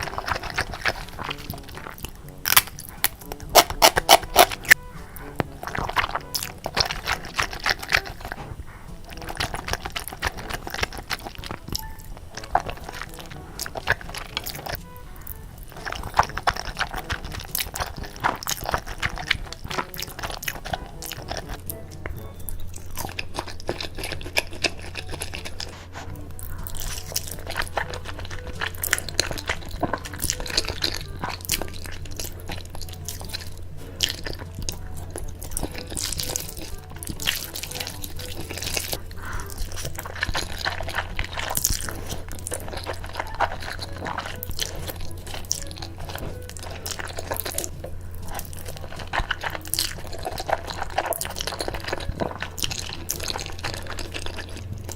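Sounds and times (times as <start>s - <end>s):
low steady hum: 0.0s - 54.9s
person chewing crunchy food: 0.0s - 54.9s.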